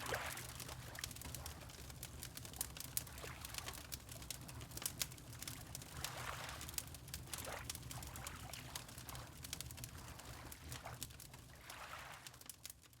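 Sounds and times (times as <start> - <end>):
fireplace crackling and popping: 0.5 - 6.0, 9.4 - 9.9.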